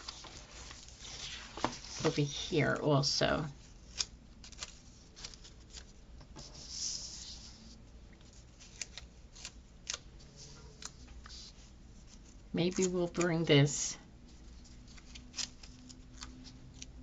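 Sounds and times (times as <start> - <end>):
soft paper rustle: 0.0 - 17.0.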